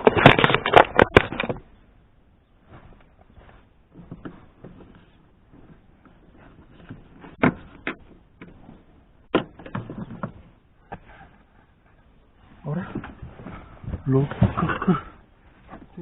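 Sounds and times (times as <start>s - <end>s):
sharp clicks and knocks: 0.0s - 1.8s
rustling and scraping of trim: 2.6s - 16.0s.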